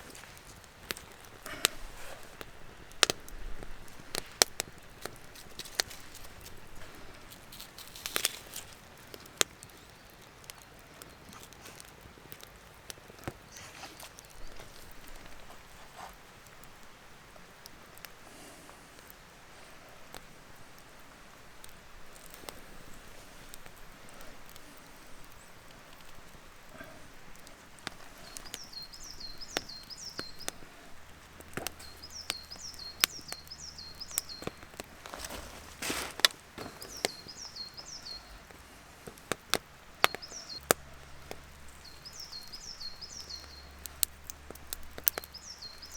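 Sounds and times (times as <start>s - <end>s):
twigs snapping: 0.0s - 16.8s, 21.6s - 45.9s
rustling forest litter: 0.0s - 45.9s
small bird singing: 27.9s - 30.7s, 31.5s - 38.6s, 39.9s - 45.9s.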